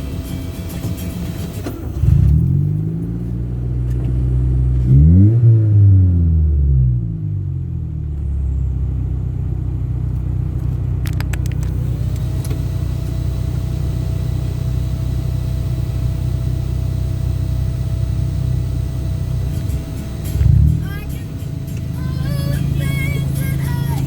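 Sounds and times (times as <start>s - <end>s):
car engine rumbling: 0.0s - 24.0s
quick clicks: 11.0s - 12.6s
faint steady whine: 11.0s - 24.0s.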